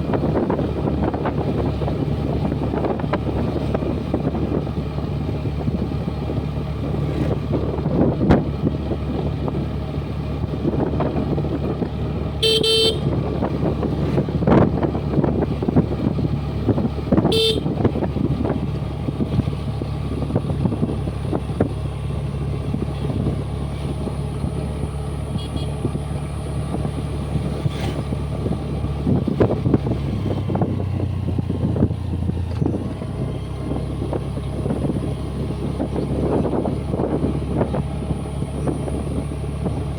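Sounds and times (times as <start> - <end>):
scooter engine running: 0.0 - 39.9
wind and road noise: 0.0 - 39.9
short horn beep: 12.4 - 13.1, 17.3 - 17.7, 25.4 - 25.8.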